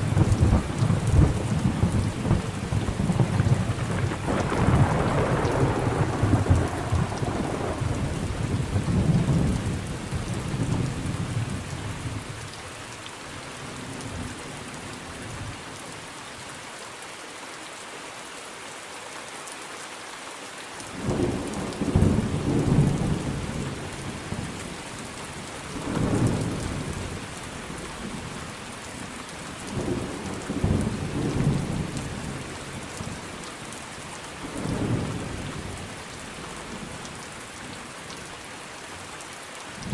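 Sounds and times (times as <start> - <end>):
thunder rolling: 0.0 - 9.8.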